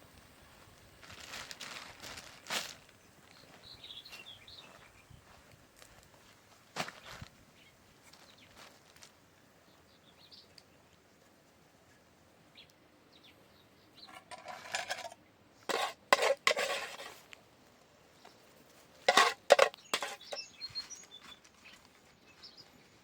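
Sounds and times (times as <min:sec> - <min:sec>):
metal cookware clattering: 0:14.1 - 0:17.2, 0:19.1 - 0:20.4
faint bird chirps: 0:19.8 - 0:23.0.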